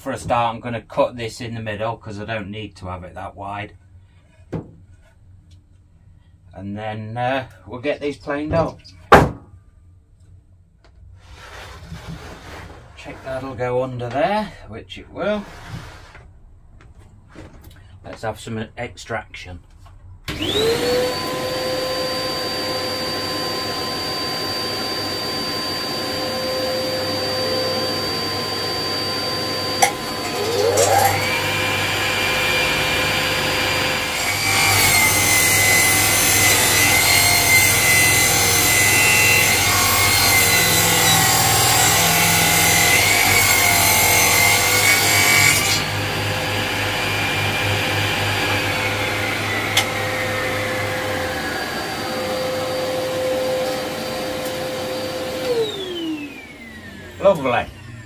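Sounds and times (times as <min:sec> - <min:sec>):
dust extractor running: 0:20.3 - 0:45.0, 0:45.6 - 0:58.0
saw cutting through wood: 0:20.3 - 0:57.8
power saw whining: 0:20.3 - 0:58.0.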